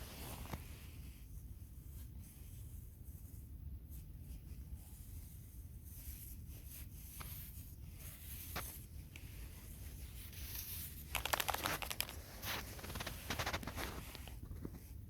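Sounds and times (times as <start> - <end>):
soft rustling and crunching: 0.0 - 15.0
rapid crackling: 10.6 - 14.4.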